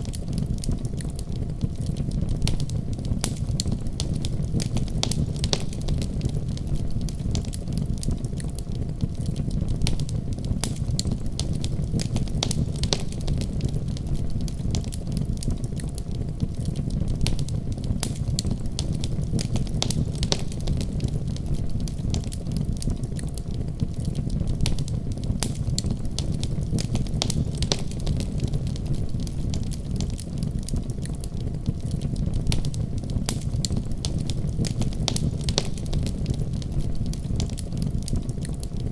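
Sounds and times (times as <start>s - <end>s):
fire pops and snaps: 0.0s - 38.9s
low rumble of flames: 0.0s - 38.9s.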